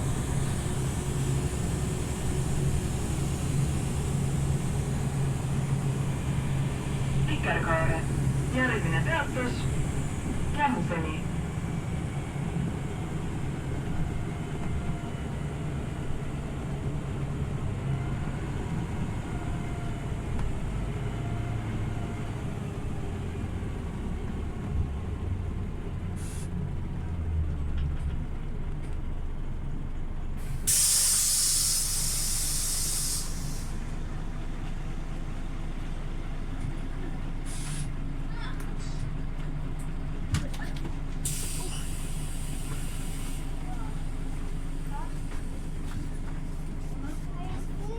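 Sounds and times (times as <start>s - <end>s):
bus engine droning: 0.0s - 47.9s
air brakes hissing: 26.2s - 26.6s, 30.4s - 33.9s, 37.4s - 38.0s, 41.2s - 44.2s.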